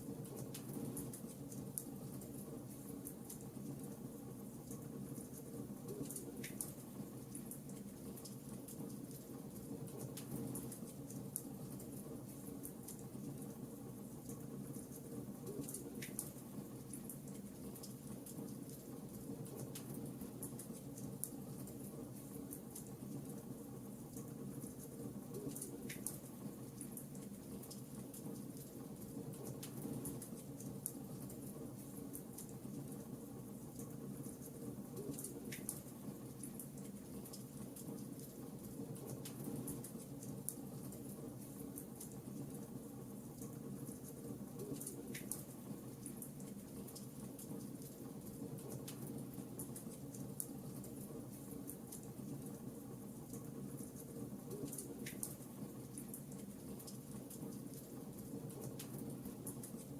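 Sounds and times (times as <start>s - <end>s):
wood fire crackling: 24.1s - 59.9s.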